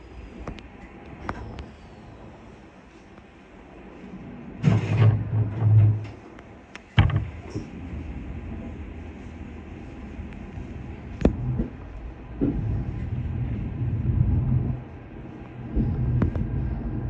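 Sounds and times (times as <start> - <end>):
train doors thudding shut: 4.6 - 7.8.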